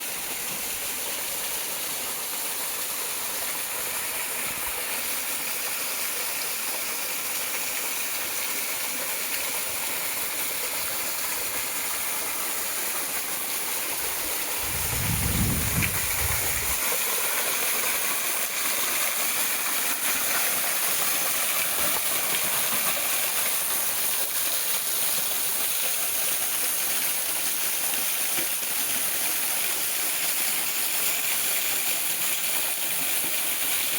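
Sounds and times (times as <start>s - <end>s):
waterfall rushing: 9.9s - 18.6s
low rumble: 14.6s - 16.8s.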